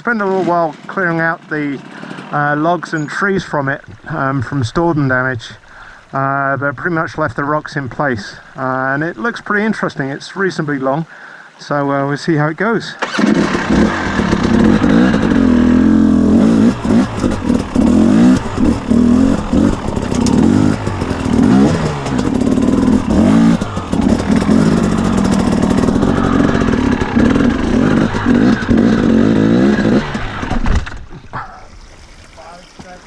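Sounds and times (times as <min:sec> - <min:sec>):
dirt bike engine revving: 0:00.0 - 0:04.8, 0:13.0 - 0:31.5.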